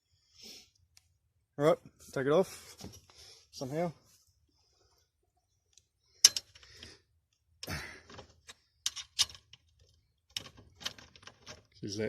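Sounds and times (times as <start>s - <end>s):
clinking hand tools and metal parts: 6.2s - 6.9s, 8.1s - 11.8s.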